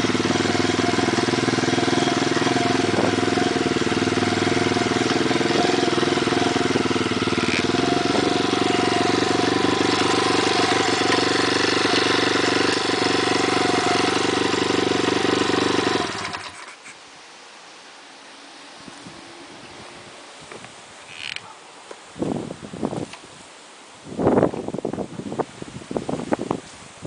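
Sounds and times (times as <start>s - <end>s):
motorbike engine running: 0.0s - 16.7s.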